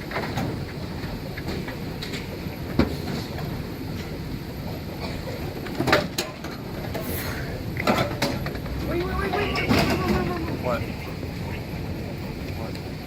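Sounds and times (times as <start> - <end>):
shopping cart rattling: 8.8 - 10.8.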